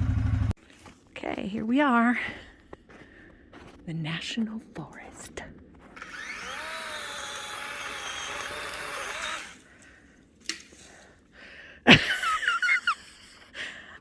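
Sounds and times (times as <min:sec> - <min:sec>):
quad engine running: 0:00.0 - 0:00.6.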